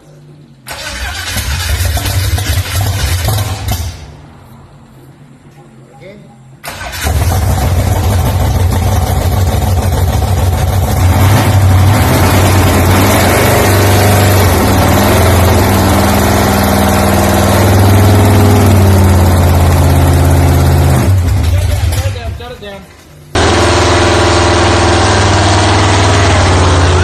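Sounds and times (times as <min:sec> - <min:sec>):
car engine running loudly: 0:07.0 - 0:22.2, 0:23.4 - 0:27.0.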